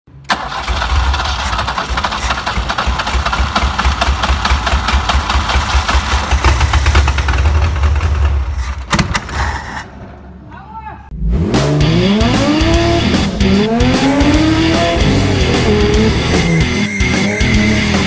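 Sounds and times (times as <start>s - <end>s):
four-cylinder engine running: 0.3s - 8.4s, 11.2s - 18.0s.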